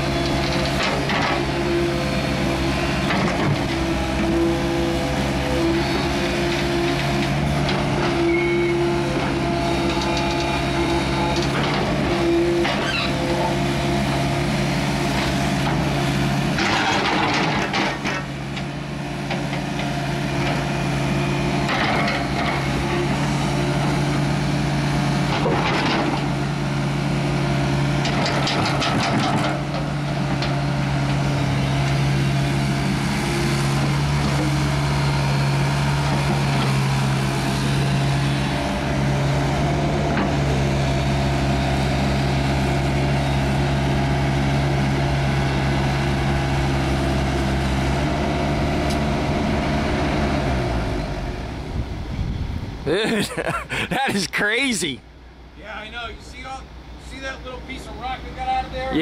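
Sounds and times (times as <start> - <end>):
heavy machinery engine running: 0.0 - 59.0.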